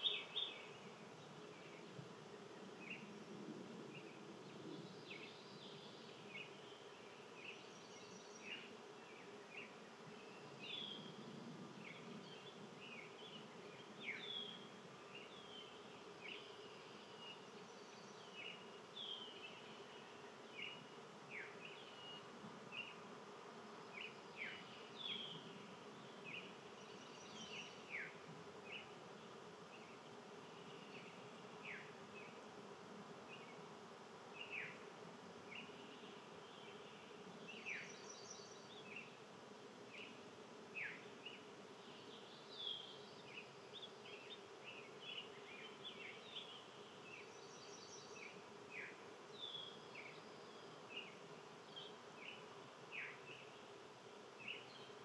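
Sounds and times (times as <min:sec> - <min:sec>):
small birds chirping: 0:00.0 - 0:03.1, 0:39.9 - 0:55.0.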